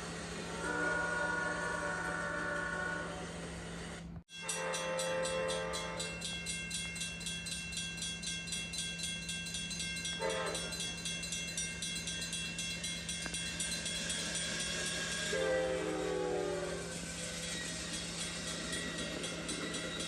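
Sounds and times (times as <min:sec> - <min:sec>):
passenger train running: 0:00.0 - 0:20.0
train horn tones: 0:00.4 - 0:03.4, 0:04.4 - 0:06.2, 0:10.2 - 0:10.8, 0:14.9 - 0:17.8.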